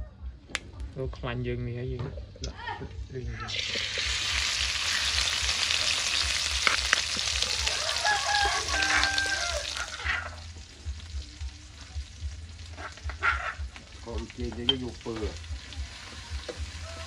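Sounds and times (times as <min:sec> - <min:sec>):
paste sizzling in hot oil: 0:03.5 - 0:17.0.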